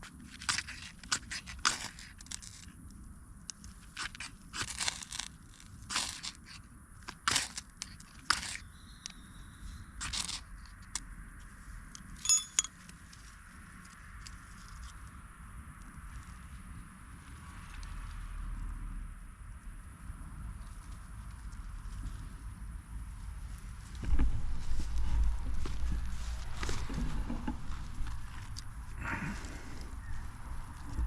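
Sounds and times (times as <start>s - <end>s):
dry straw crunching and rustling: 3.9s - 6.6s, 23.4s - 31.0s.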